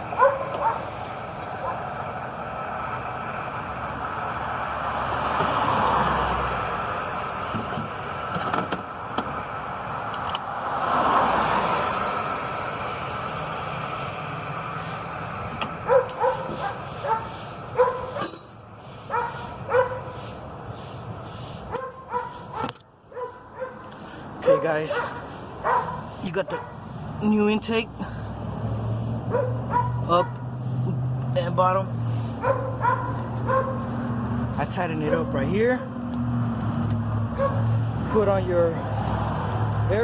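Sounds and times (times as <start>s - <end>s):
dog barking and yipping: 0.1s - 0.9s, 15.8s - 18.4s, 19.1s - 20.2s, 21.7s - 26.8s, 29.3s - 30.4s, 32.4s - 33.9s, 37.3s - 37.7s.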